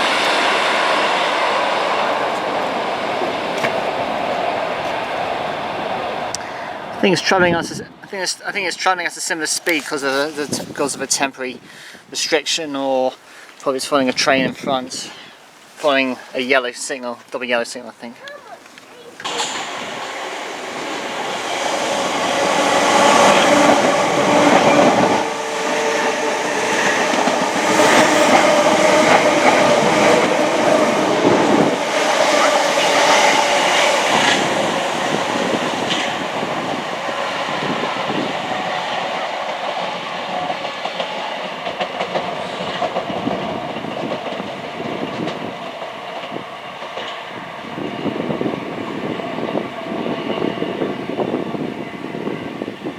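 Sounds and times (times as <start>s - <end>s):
train whine: 0.0s - 7.1s, 19.2s - 52.9s
train wheels rumbling on rails: 0.0s - 7.8s, 19.2s - 52.9s
clickety-clack over rail joints: 1.6s - 6.4s, 18.7s - 21.4s, 22.0s - 50.6s.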